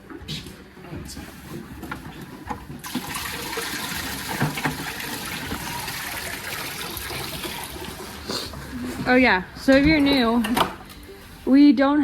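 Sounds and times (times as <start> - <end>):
water pouring into a bucket: 2.8 - 8.2.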